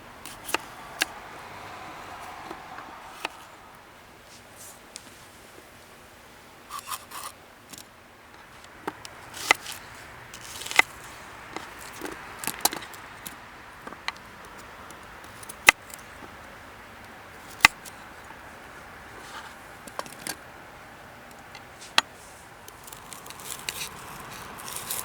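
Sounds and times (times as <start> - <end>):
clicks and knocks of objects handled: 6.7 - 16.4, 19.2 - 20.4, 21.3 - 25.0.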